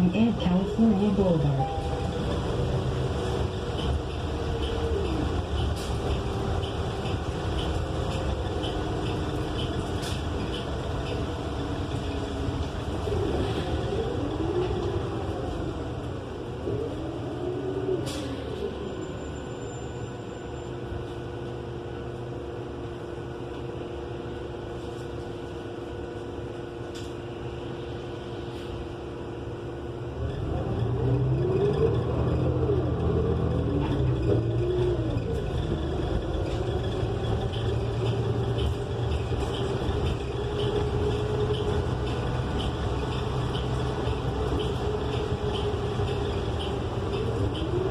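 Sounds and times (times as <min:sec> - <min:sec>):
bus drivetrain whine: 0:00.0 - 0:47.9
bus engine accelerating: 0:00.0 - 0:47.9.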